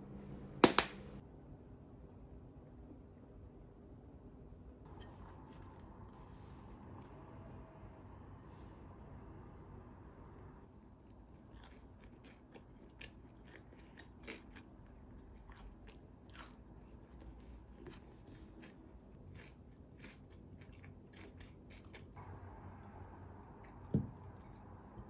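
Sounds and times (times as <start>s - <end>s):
chewing crunchy food: 11.0s - 22.2s.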